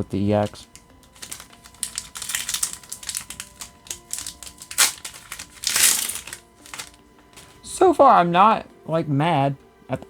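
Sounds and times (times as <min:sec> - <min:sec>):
foil wrapper crinkling and tearing: 0:00.4 - 0:07.0.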